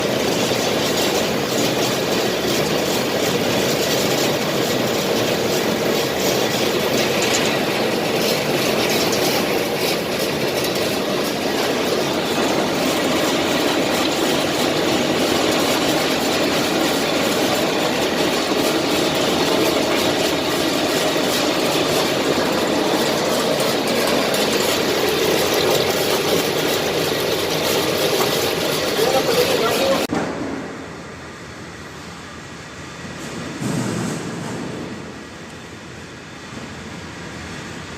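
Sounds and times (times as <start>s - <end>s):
machine rumbling and rattling: 0.0s - 30.9s, 33.0s - 35.6s.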